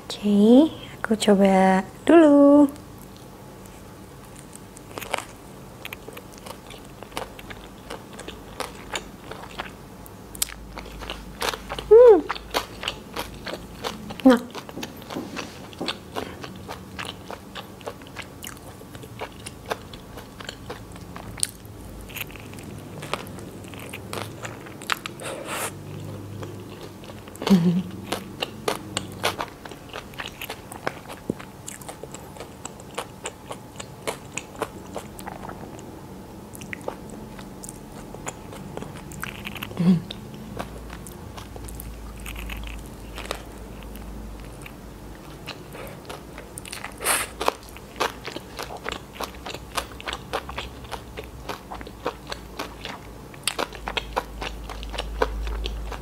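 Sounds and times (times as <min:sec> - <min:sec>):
chewing with wet mouth clicks: 0:02.8 - 0:35.9, 0:36.5 - 0:56.0
person humming: 0:11.9 - 0:12.3, 0:27.4 - 0:27.9, 0:39.8 - 0:40.2.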